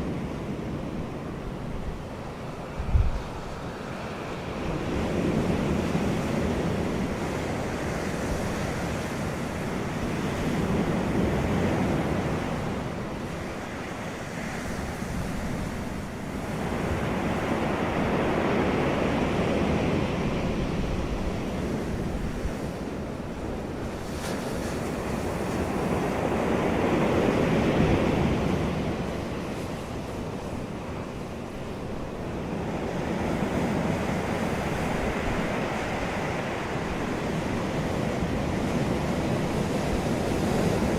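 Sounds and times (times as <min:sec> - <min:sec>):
wind blowing: 0:00.0 - 0:13.7
wind rumble on microphone: 0:00.0 - 0:40.9.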